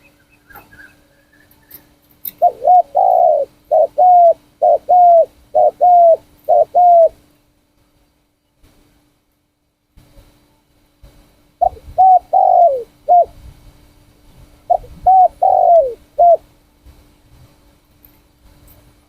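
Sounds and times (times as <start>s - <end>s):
dove cooing: 0.5s - 7.2s, 11.6s - 13.4s, 14.6s - 16.4s.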